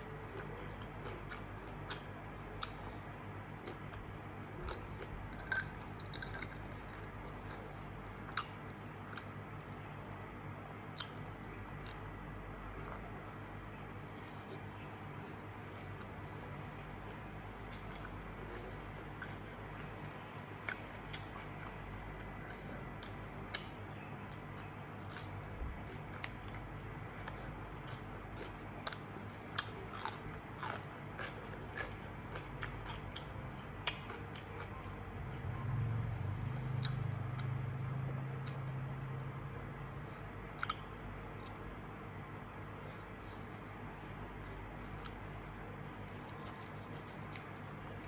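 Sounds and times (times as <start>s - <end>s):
low hum: 0.0s - 48.0s
person chewing food: 0.0s - 48.0s
crisp crunches: 44.4s - 48.0s.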